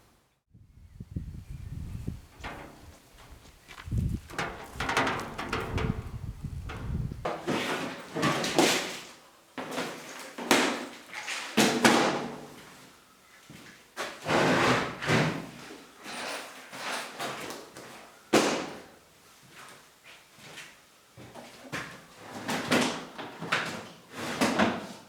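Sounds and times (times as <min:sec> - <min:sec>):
wooden knocks and scrapes: 0:04.0 - 0:07.7.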